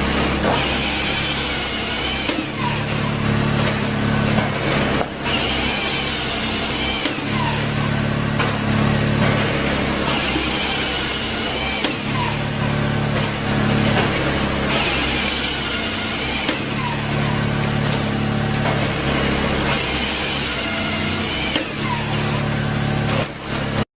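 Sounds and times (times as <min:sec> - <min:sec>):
firewood processor droning: 0:00.0 - 0:23.9.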